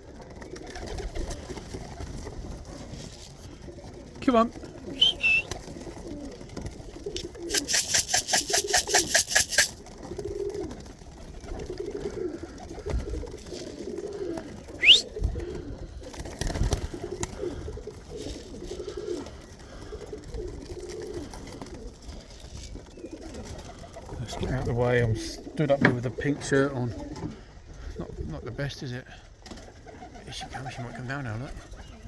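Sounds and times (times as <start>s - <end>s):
pigeons cooing: 0.1s - 28.4s, 29.2s - 32.0s
short rising whistle: 5.0s - 5.5s, 14.8s - 15.0s
rattle of sharp clicks: 7.2s - 9.8s.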